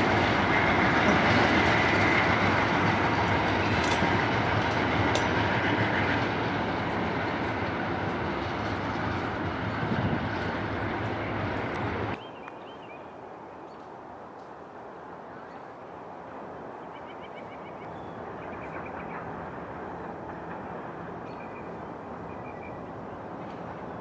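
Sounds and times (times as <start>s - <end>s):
train wheels clattering on rails: 0.0s - 12.2s, 18.5s - 24.0s.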